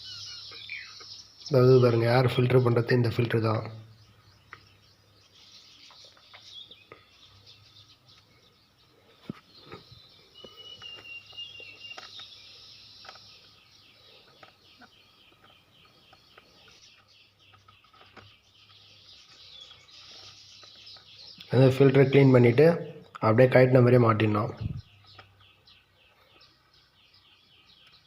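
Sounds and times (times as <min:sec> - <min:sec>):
birds chirping: 0:00.0 - 0:28.0
small clicks and knocks: 0:14.2 - 0:21.2.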